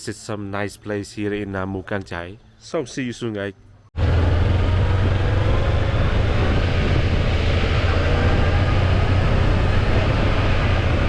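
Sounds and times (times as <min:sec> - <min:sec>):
road noise: 0:03.5 - 0:11.0
motorbike engine: 0:04.0 - 0:11.0
wind rumble: 0:04.0 - 0:11.0.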